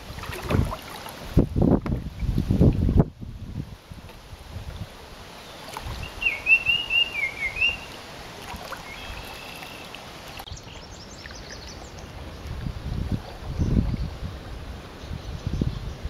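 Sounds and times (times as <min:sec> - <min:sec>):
songbird singing: 0:04.7 - 0:16.0
faint bird chirps: 0:05.9 - 0:08.0, 0:08.8 - 0:12.2.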